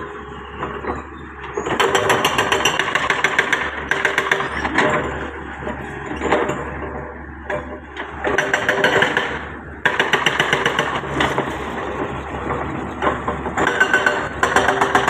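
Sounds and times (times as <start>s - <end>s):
excavator diesel engine rattling: 0.0s - 15.0s.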